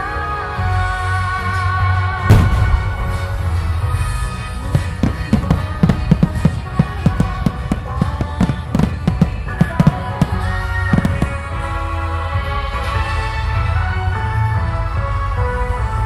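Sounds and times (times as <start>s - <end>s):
background music: 0.0s - 16.0s
fireworks bangs: 2.3s - 11.6s.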